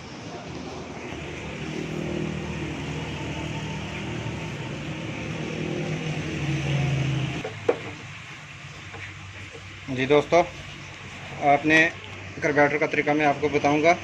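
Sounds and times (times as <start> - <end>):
vehicle engine running: 1.0 - 9.5.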